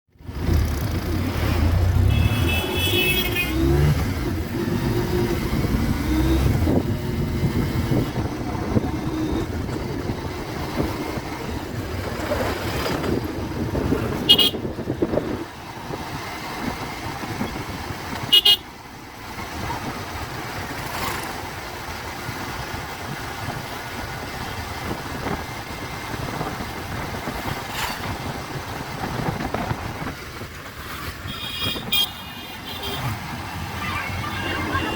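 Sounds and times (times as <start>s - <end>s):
vehicle horn beeping: 2.0s - 3.7s, 14.2s - 14.7s, 18.3s - 18.6s, 31.2s - 33.1s, 33.8s - 34.9s.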